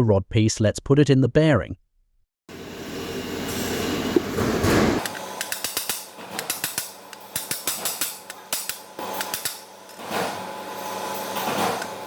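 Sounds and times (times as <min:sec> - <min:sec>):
whirring noise: 0:02.5 - 0:10.8.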